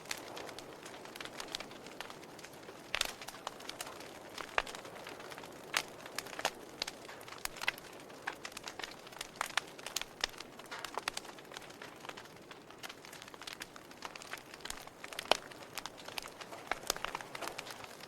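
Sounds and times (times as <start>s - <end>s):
soft steady hiss: 0.0s - 18.0s
wood fire crackling: 0.0s - 18.0s.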